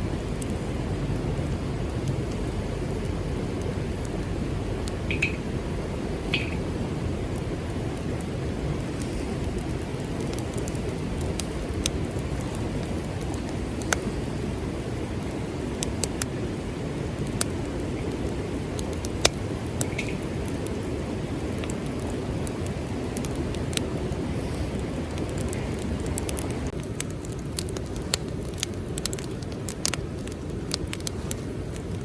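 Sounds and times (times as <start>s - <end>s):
low rushing background: 0.0s - 14.9s
sharp pops of fire: 0.0s - 32.0s
wood fire crackling: 0.0s - 32.0s.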